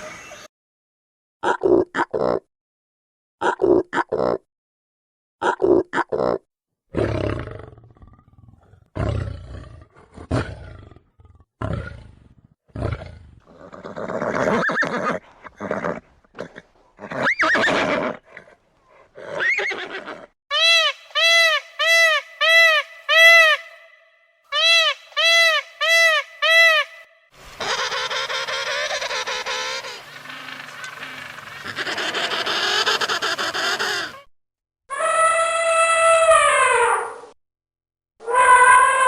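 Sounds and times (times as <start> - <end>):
animal cries: 27.6 - 34.3, 38.2 - 39.0.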